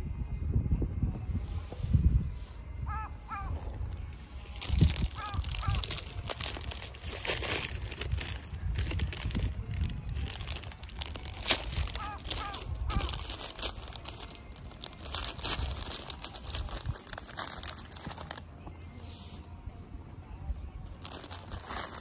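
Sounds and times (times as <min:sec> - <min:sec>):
plastic wrapper crinkling: 0:04.1 - 0:18.5, 0:21.0 - 0:22.0.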